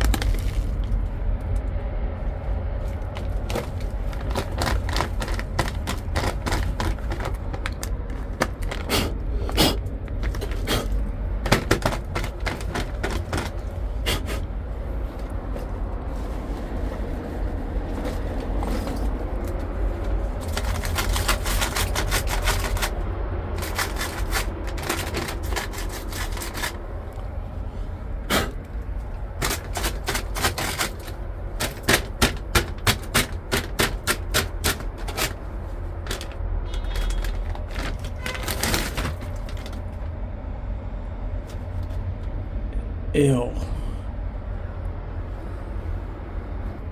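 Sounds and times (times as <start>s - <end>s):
metallic clicks and knocks on sheet metal: 29.4s - 39.8s.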